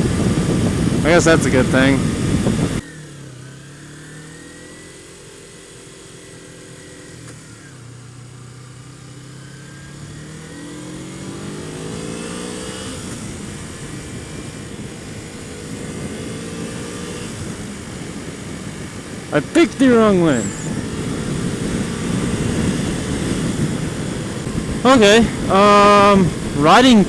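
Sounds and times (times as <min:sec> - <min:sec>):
wind noise: 0:00.0 - 0:02.8, 0:11.2 - 0:27.0
motorcycle engine accelerating: 0:00.0 - 0:27.0.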